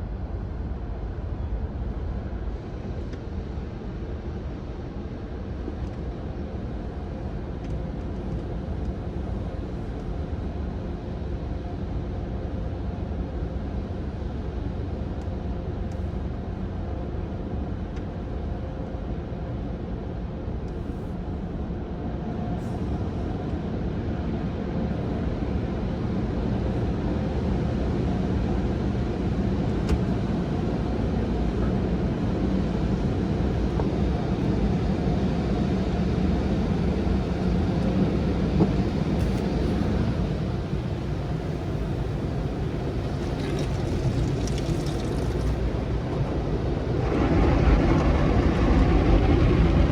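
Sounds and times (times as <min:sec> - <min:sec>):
car cabin low rumble: 0:29.7 - 0:49.9.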